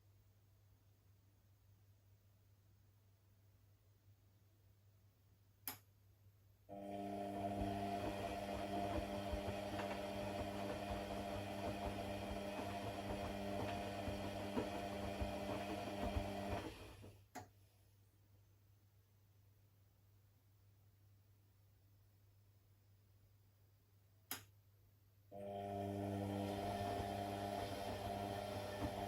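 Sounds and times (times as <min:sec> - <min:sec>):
electric motor humming: 0:06.8 - 0:17.1, 0:25.4 - 0:29.0.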